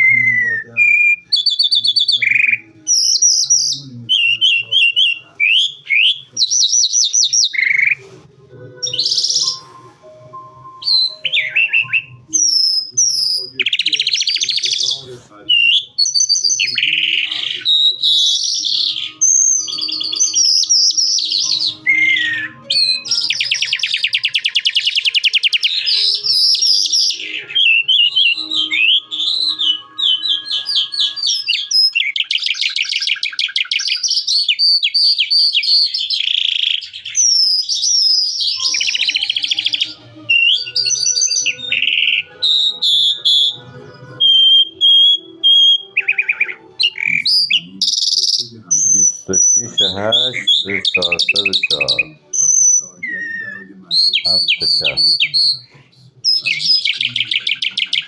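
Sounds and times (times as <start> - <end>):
lark singing: 0.0 - 8.1, 8.7 - 58.0.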